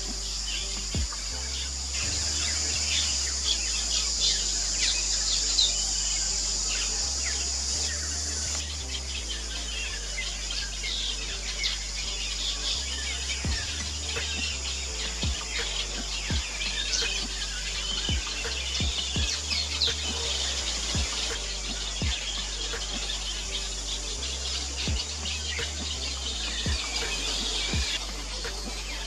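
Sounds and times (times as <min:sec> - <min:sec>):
birds twittering: 0:00.0 - 0:29.0
steady high hiss: 0:00.0 - 0:29.0.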